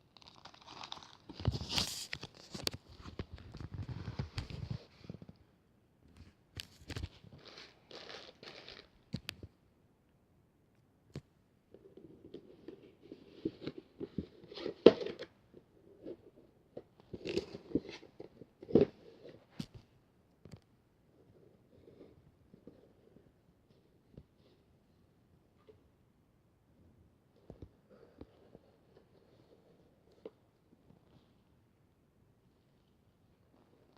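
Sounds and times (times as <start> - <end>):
packaging rustling and crinkling: 0.1 - 5.3.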